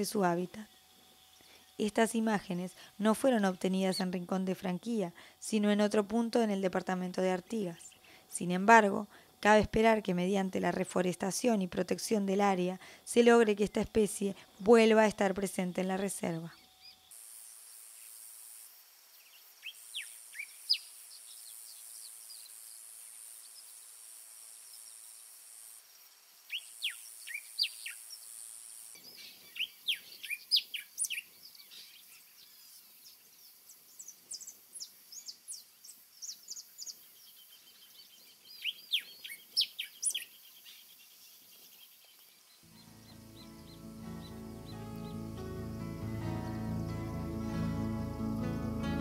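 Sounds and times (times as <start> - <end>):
songbird chirping: 0.0 - 17.1, 26.5 - 28.2, 29.0 - 49.0
steady high hiss: 0.0 - 49.0.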